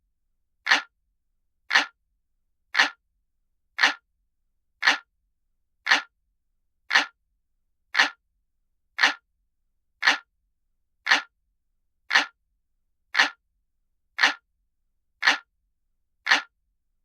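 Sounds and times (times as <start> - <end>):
clock ticking: 0.7 - 0.9, 1.7 - 2.0, 2.8 - 3.0, 3.8 - 4.0, 4.8 - 5.1, 5.9 - 6.1, 6.9 - 7.2, 8.0 - 8.2, 9.0 - 9.2, 10.0 - 10.3, 11.1 - 11.3, 12.1 - 12.4, 13.2 - 13.4, 14.2 - 14.4, 15.2 - 15.5, 16.3 - 16.5.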